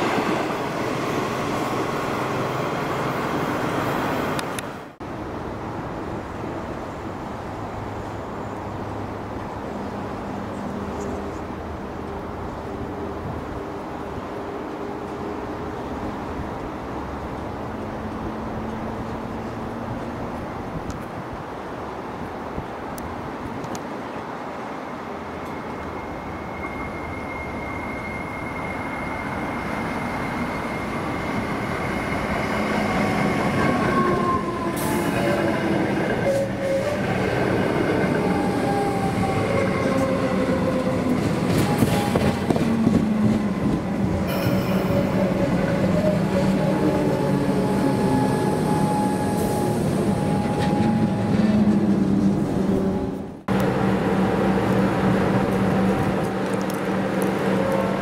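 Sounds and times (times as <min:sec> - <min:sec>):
train wheels rumbling on rails: 0:25.2 - 0:58.0
squealing wheel tones: 0:25.4 - 0:34.5.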